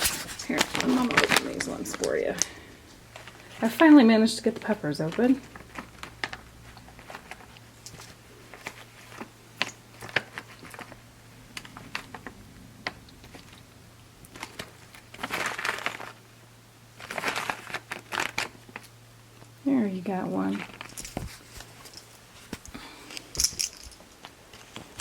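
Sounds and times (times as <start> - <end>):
plastic pouch crinkling: 0.0 - 3.8, 4.5 - 12.3, 14.3 - 16.3, 17.0 - 19.0, 20.5 - 22.6.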